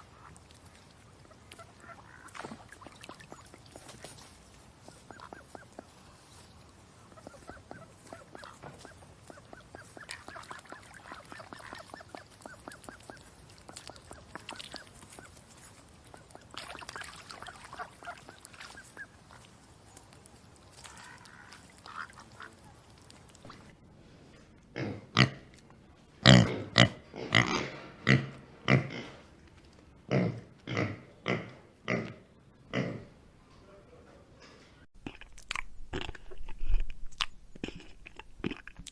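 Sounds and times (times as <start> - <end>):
pigs grunting: 24.7 - 25.5, 26.2 - 29.3, 30.0 - 33.2.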